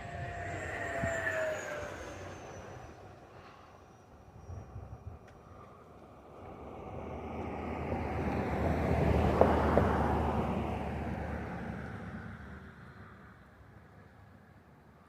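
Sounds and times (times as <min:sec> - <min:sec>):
model jet fan whoosh: 0:00.0 - 0:04.9.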